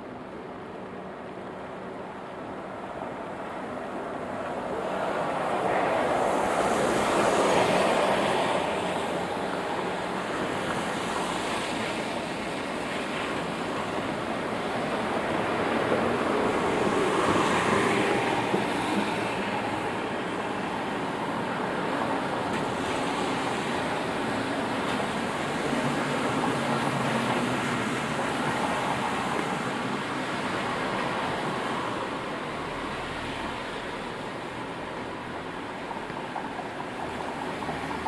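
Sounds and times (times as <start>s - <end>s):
rain: 0.0s - 38.0s
tyres hissing on wet road: 2.7s - 38.0s.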